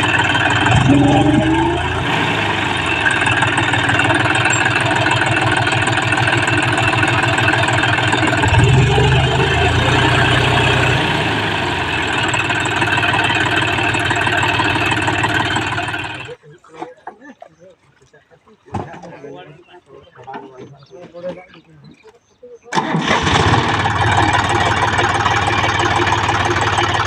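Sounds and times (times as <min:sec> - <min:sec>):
tractor diesel engine running: 0:00.0 - 0:16.4, 0:22.7 - 0:27.0.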